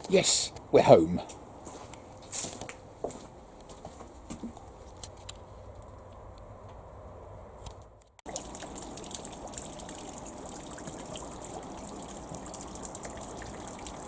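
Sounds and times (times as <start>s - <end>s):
water running and splashing: 8.3s - 14.0s.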